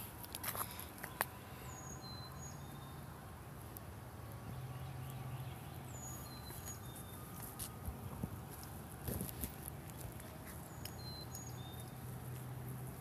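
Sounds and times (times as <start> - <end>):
songbird whistling: 5.9 - 7.2, 10.7 - 12.0.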